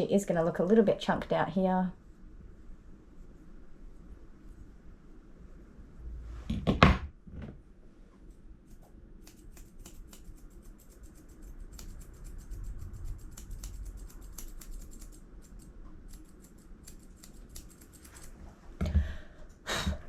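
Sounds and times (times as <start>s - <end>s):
scissors snipping hair: 8.3s - 18.4s.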